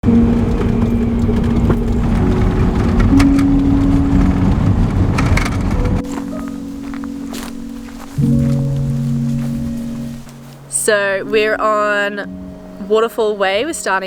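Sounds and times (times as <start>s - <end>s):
vehicle driving rumble: 0.0s - 11.1s
music playing: 0.0s - 14.0s.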